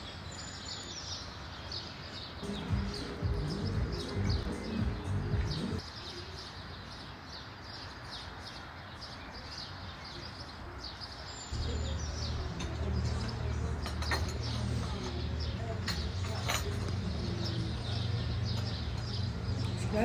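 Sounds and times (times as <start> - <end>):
outdoor background noise: 0.0 - 20.0
small birds chirping: 0.0 - 20.0
low-pitched music: 2.4 - 5.8, 11.6 - 15.8.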